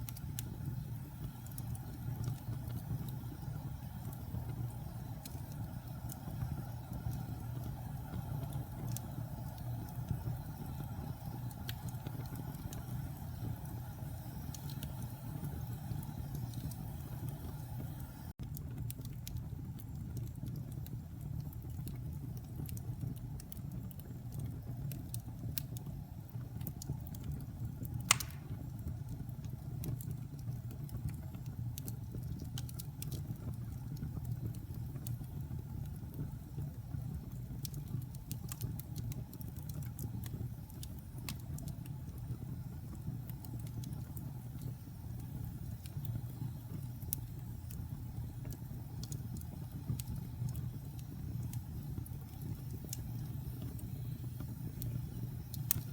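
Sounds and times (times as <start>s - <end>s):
fire crackling: 0.0s - 55.9s
fire rumbling in a fireplace: 0.0s - 55.9s
sharp loud pop of fire: 28.1s - 28.6s.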